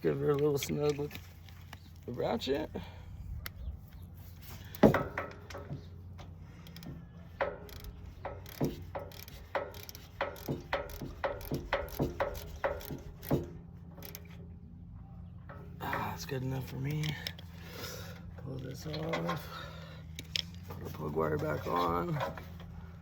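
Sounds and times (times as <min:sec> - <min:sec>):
ratchet clicking: 0:06.6 - 0:14.4.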